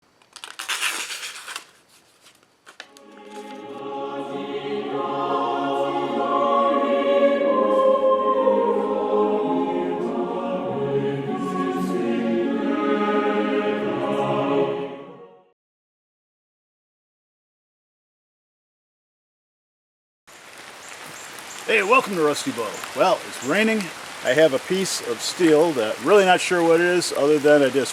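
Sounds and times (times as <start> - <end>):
choir singing held chords: 2.9 - 15.6.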